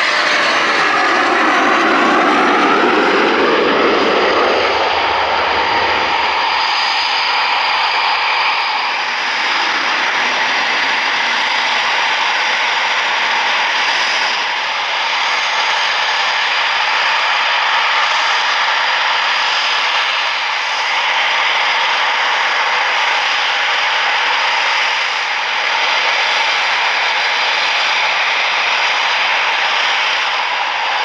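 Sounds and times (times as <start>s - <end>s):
jet engines running: 0.0s - 31.0s.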